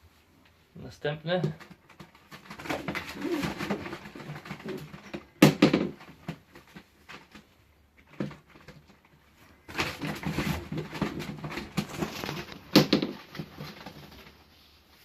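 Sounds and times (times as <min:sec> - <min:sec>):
scuffling and rustling: 0:01.8 - 0:05.2, 0:08.4 - 0:15.0.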